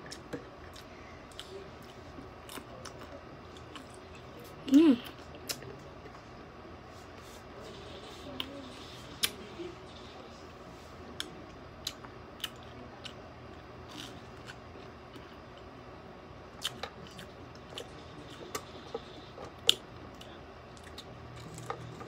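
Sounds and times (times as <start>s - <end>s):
chewing crispy food: 0.1s - 4.4s, 16.5s - 22.0s.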